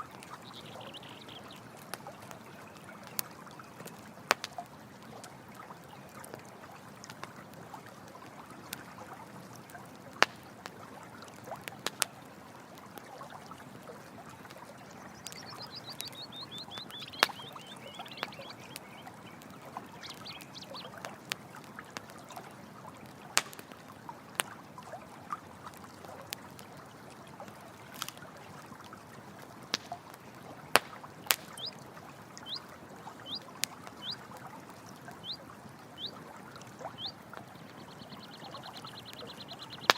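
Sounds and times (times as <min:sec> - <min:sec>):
campfire crackling and popping: 0:00.0 - 0:39.9
stream water running: 0:00.0 - 0:39.9
faint high chirps: 0:15.0 - 0:21.0.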